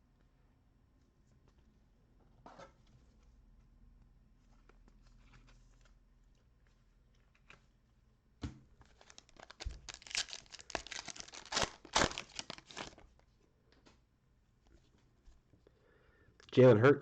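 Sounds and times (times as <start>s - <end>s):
foil wrapper crackling: 8.8s - 13.1s
foil wrapper ripping: 8.9s - 13.1s.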